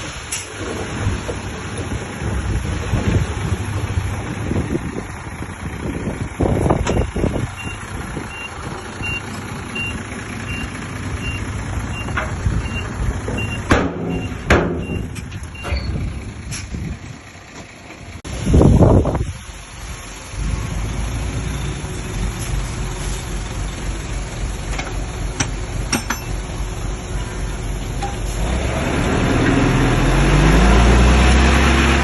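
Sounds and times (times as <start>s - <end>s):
diesel heavy equipment running: 0.0s - 32.0s
reversing alarm beeps: 6.9s - 15.9s
sharp metallic knocks: 13.3s - 15.9s, 24.8s - 26.4s.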